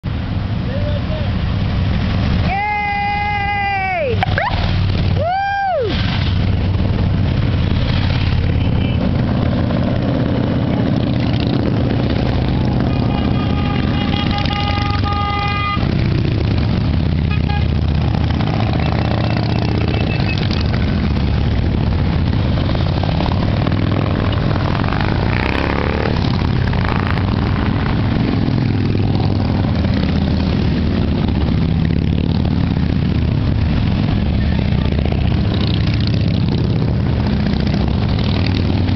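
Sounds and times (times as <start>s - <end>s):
motorcycle engines rumbling: 0.0s - 38.9s
vehicle horn: 12.9s - 16.1s, 17.2s - 17.8s.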